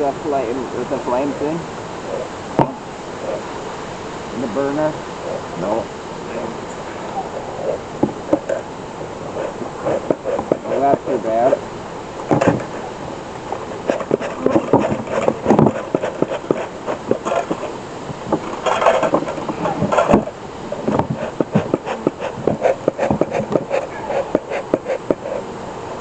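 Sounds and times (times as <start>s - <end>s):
bellows puffs: 6.8s - 11.6s, 18.5s - 25.6s.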